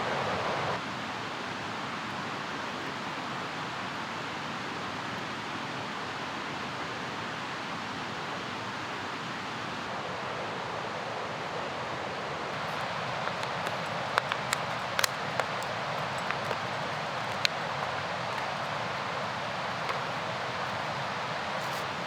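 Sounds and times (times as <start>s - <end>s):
rushing mountain river: 8.6s - 22.0s
faint clicks: 12.6s - 22.0s.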